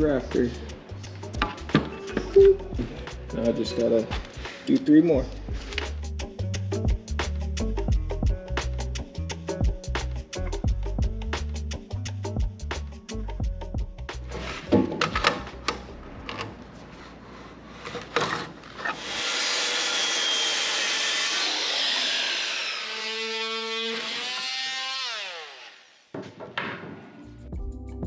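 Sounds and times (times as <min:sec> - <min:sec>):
power saw cutting wood: 0:18.8 - 0:26.2
sharp knocks: 0:26.2 - 0:27.2.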